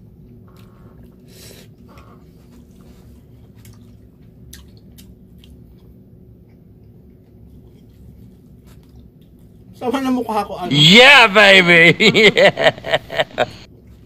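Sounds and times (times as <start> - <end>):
low room hum: 0.0 - 14.0
person chewing food: 0.6 - 9.7.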